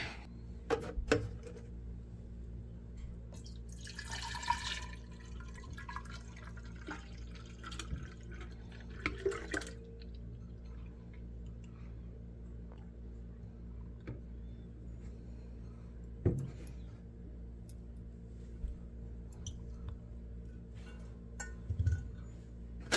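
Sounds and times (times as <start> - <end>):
milk pouring into glass jar: 3.7 - 10.2.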